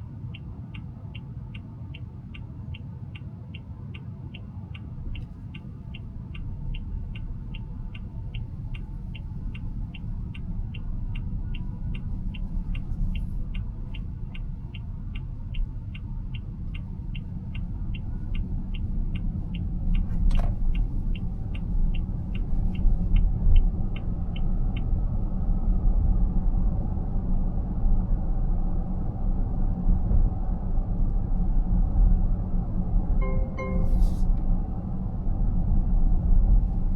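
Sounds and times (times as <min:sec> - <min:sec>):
turn signal ticking: 0:00.0 - 0:28.1, 0:33.2 - 0:34.4
road and tyre rumble: 0:00.0 - 0:36.9.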